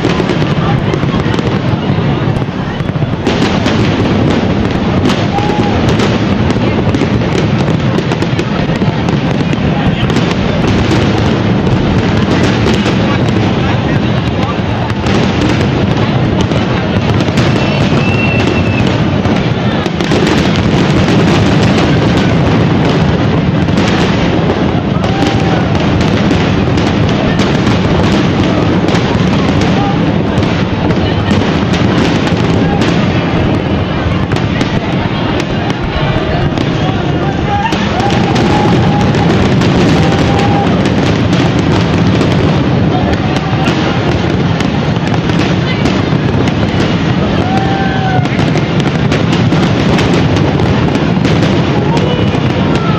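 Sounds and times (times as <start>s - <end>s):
fireworks crackling and banging: 0.0s - 52.9s
firework whistle: 17.0s - 23.1s.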